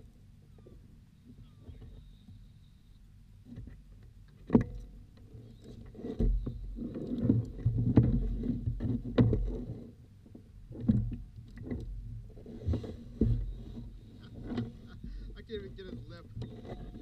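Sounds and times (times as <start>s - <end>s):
low rumble of water and wind: 0.0s - 17.0s
knocks and clicks on kayak: 3.4s - 5.2s, 6.0s - 9.9s
dull thumps through hull: 10.8s - 17.0s.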